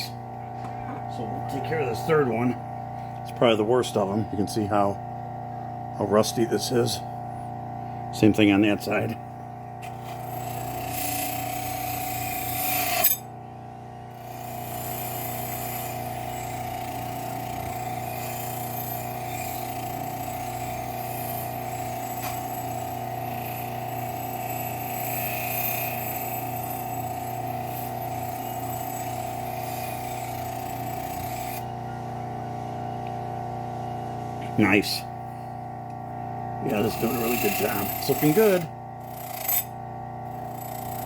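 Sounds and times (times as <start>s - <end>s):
bench grinder motor hum: 0.0s - 41.0s
blade rubbing on grinding wheel: 9.8s - 13.3s, 14.1s - 31.7s, 36.6s - 41.0s.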